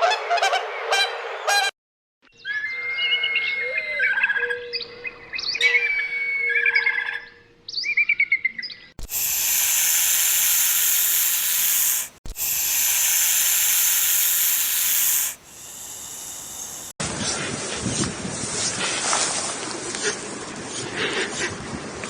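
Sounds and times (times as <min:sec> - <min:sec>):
high chirps: 0:09.0 - 0:16.9
loud steady hiss: 0:09.0 - 0:17.0.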